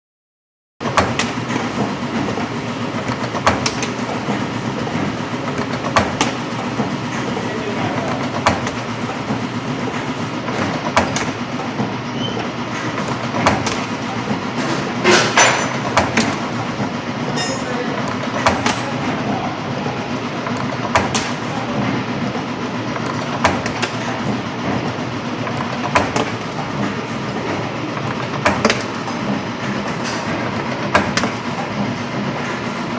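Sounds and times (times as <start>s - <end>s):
loud machine rattle: 0.8s - 32.9s
machine humming: 0.8s - 32.9s
sharp machine clack: 12.4s - 19.2s.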